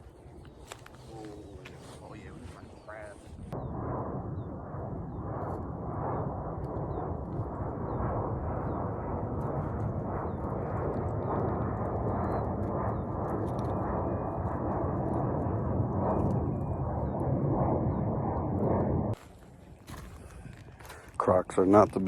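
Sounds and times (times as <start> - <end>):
wind buffeting microphone: 0.0 - 22.0
footsteps crunching on pebbles: 19.2 - 22.0.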